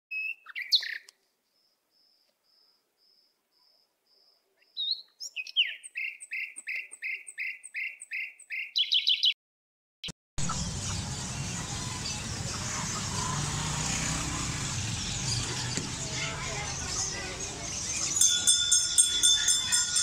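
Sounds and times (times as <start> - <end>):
bird chirping and whistling: 0.1 - 1.0, 4.8 - 9.4
steady background noise: 10.4 - 20.0.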